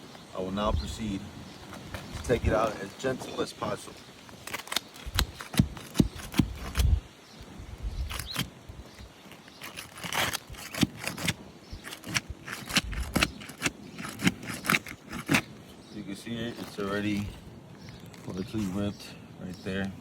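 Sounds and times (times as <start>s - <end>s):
metal clicks and scrapes: 4.2s - 6.9s, 8.0s - 8.5s, 9.3s - 15.5s.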